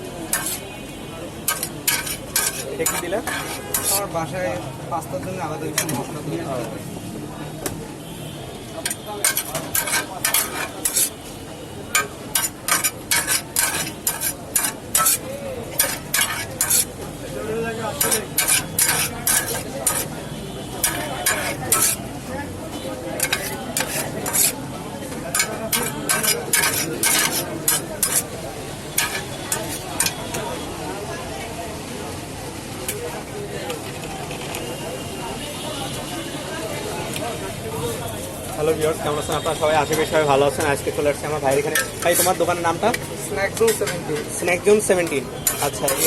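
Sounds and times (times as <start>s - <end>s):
spatula scraping a pan: 0.3s - 0.7s, 1.4s - 4.1s, 5.8s - 6.0s, 8.8s - 22.1s, 23.2s - 24.6s, 25.3s - 30.2s, 41.6s - 44.0s, 45.4s - 46.0s.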